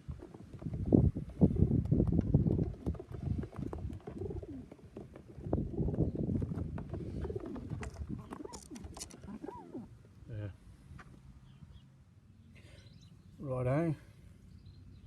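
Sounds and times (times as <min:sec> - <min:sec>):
pigeons cooing: 0:00.0 - 0:10.6.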